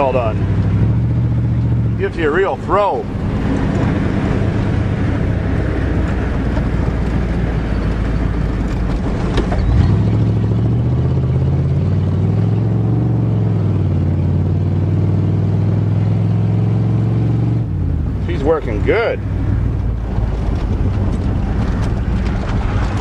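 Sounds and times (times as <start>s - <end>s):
pickup truck engine under load: 0.0s - 12.5s, 17.6s - 23.0s.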